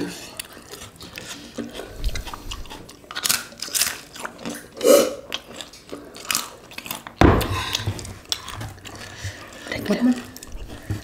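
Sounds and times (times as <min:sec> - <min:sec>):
chewing food: 0:00.0 - 0:11.0
thump: 0:07.2 - 0:07.6.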